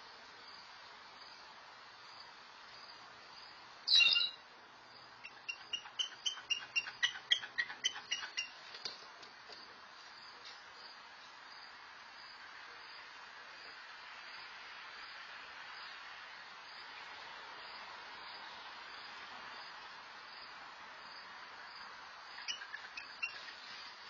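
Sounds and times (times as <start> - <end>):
bird call: 3.9 - 4.4, 22.4 - 23.6
bird chirps: 3.9 - 4.4, 5.2 - 8.6, 22.4 - 23.7.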